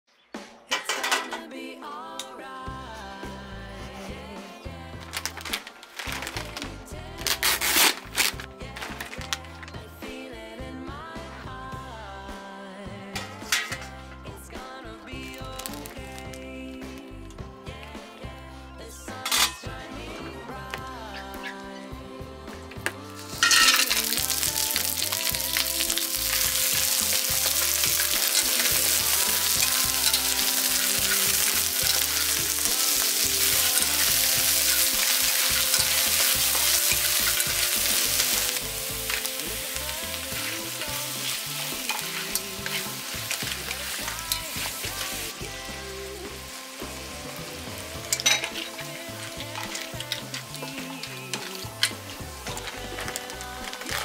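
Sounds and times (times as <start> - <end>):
food sizzling in hot pan: 5.0 - 9.5, 15.2 - 16.5, 23.0 - 54.0
stirring in pan: 23.1 - 54.0.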